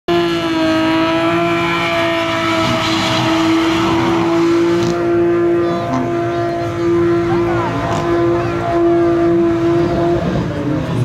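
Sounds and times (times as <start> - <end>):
car engine at high revs: 0.1 - 11.0
tyres screeching: 1.2 - 9.2.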